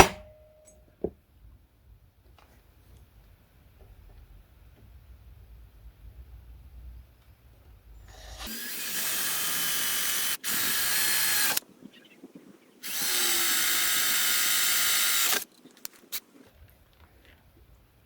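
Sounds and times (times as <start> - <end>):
electric drill drilling wood: 8.1 - 11.6, 12.8 - 15.4.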